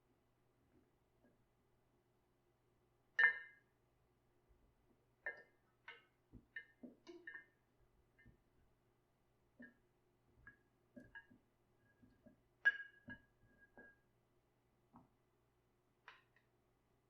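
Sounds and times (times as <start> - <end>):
glass clinking: 3.2 - 3.7, 5.3 - 7.6, 10.5 - 14.0.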